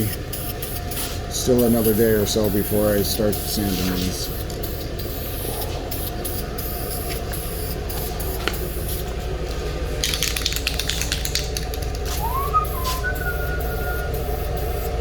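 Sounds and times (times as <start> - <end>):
spray-paint can hissing: 3.3 - 9.0, 10.0 - 14.9.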